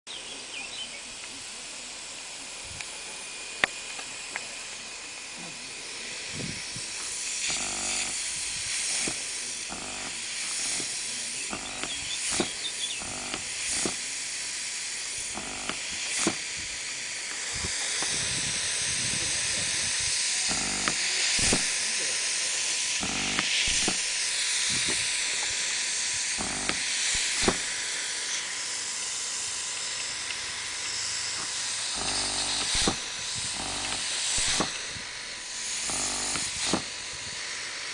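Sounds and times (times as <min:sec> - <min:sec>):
air rig hissing: 0:00.1 - 0:37.9
pneumatic piston air pulses: 0:03.6 - 0:37.9
sharp clicks: 0:07.0 - 0:14.0, 0:15.3 - 0:16.4, 0:20.5 - 0:21.8, 0:23.0 - 0:24.1, 0:26.4 - 0:27.8, 0:31.4 - 0:35.0, 0:35.8 - 0:36.9.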